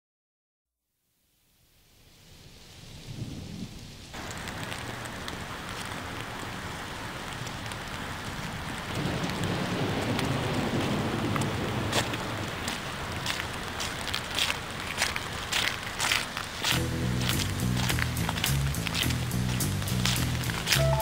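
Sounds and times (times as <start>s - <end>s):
steady rain: 1.2s - 21.0s
raindrops pattering: 2.0s - 21.0s
thunder rumbling: 3.0s - 14.1s, 16.7s - 21.0s.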